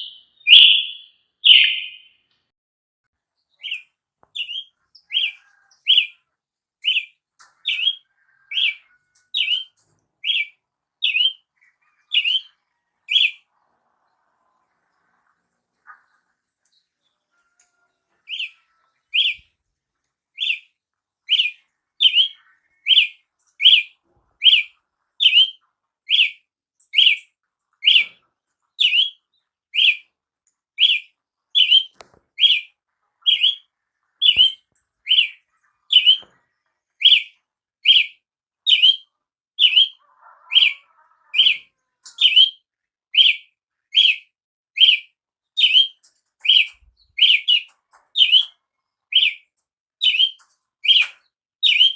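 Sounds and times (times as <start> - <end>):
bird calling short sharp notes: 0.0 - 2.2.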